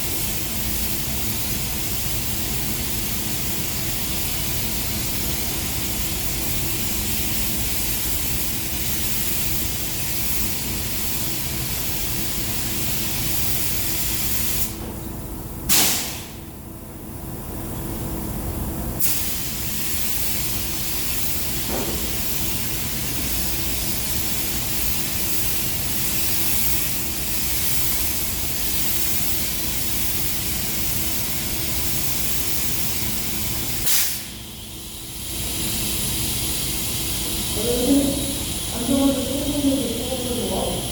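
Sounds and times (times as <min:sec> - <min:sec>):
paint spray gun hissing: 0:15.7 - 0:16.4, 0:19.0 - 0:40.9.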